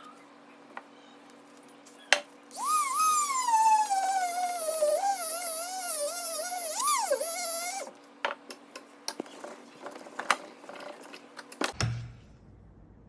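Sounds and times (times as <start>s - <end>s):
high wavering animal whine: 2.5s - 7.9s.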